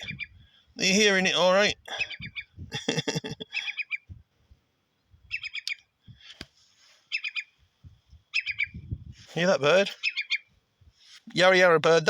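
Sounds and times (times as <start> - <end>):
low wind rumble: 0.0 - 6.3, 7.5 - 11.0
bird chattering call: 5.3 - 5.8, 7.1 - 7.5, 8.3 - 8.8, 9.9 - 10.5.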